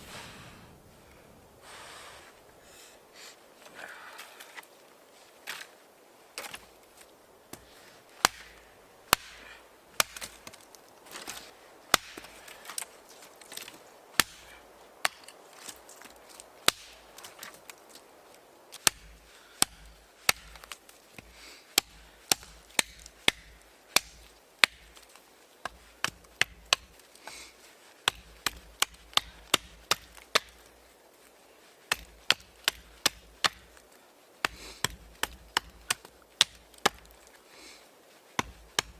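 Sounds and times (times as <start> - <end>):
wood chopping strikes: 7.5 - 12.9, 13.5 - 17.8, 18.8 - 30.8, 31.8 - 37.3, 38.4 - 38.9.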